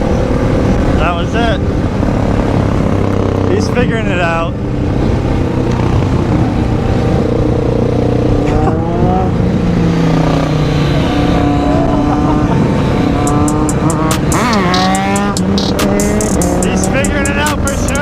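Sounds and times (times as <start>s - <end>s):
wind rush on microphone: 0.0s - 14.3s
motorcycle engines at road speed: 0.0s - 18.0s.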